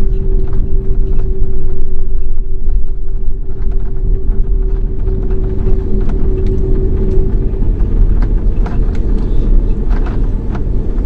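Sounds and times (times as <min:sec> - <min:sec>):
airliner cabin rumble: 0:00.0 - 0:11.0
steady engine hum: 0:00.0 - 0:11.0
knocks and rattles: 0:02.6 - 0:11.0.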